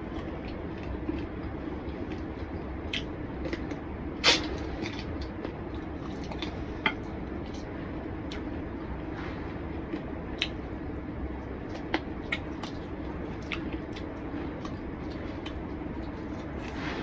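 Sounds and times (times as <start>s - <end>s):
low background hum: 0.0s - 17.0s
wet chewing and mouth clicks: 13.4s - 14.8s.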